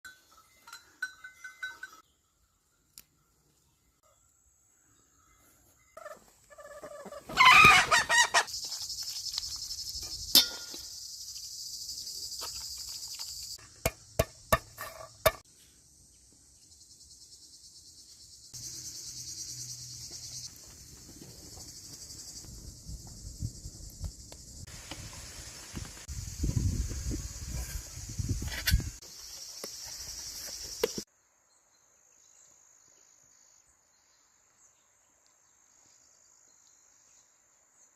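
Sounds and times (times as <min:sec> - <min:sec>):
insects chirring: 0:04.3 - 0:31.1.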